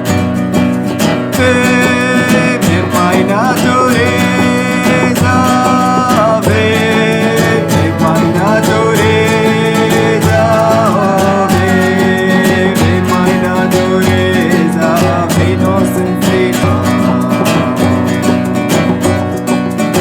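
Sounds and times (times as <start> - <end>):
acoustic guitar strumming: 0.0 - 20.0
person singing: 0.0 - 20.0.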